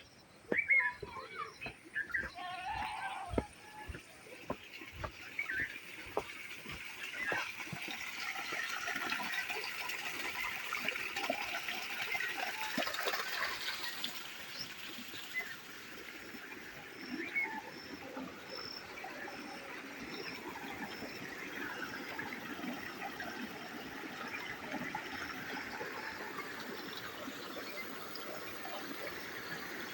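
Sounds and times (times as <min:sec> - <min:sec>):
running water trickling: 0:00.4 - 0:29.9.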